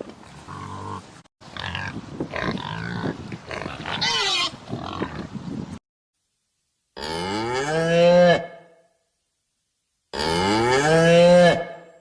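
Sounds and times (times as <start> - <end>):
cow mooing: 10.2 - 11.9.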